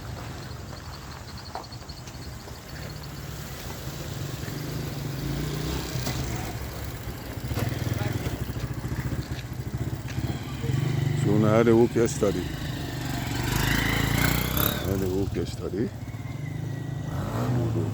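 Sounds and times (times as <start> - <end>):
vehicle engine running: 0.0 - 17.9
voices in background: 6.0 - 12.8.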